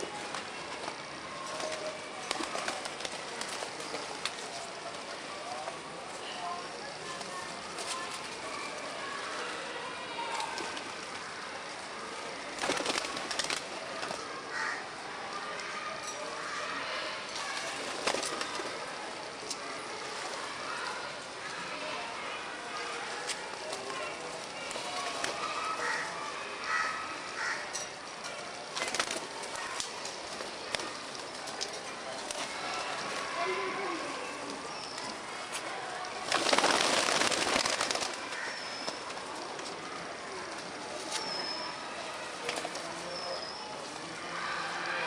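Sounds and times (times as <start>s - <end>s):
steady noisy background: 0.0s - 45.0s
flurry of wingbeats: 0.1s - 5.3s, 10.2s - 11.3s, 12.0s - 14.8s, 17.3s - 21.6s, 22.8s - 27.6s, 28.6s - 44.5s.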